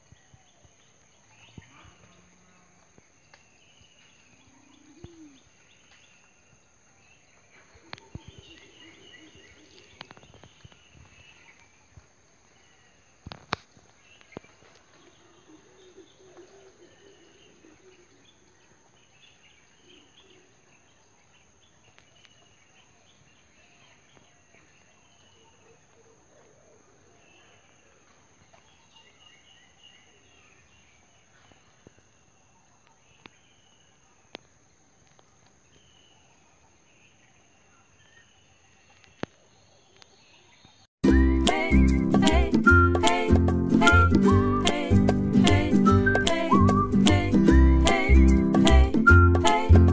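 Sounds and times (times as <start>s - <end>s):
distant birds chirping: 0.0s - 49.9s.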